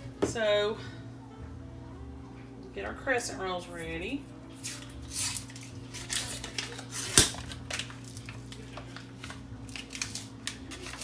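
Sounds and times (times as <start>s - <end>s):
wrapper rustling: 4.5s - 11.0s
dough can cracking open: 4.7s - 11.0s.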